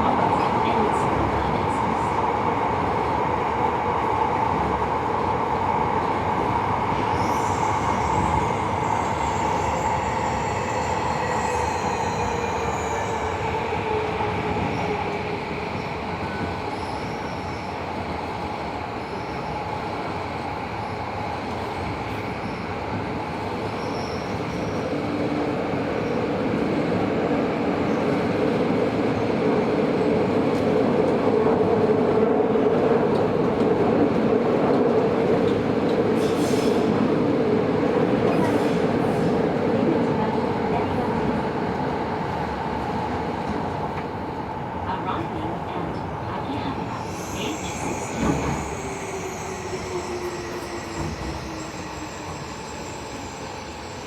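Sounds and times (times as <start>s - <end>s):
subway train rolling noise: 0.0s - 54.0s
high wheel squeal: 47.0s - 54.0s.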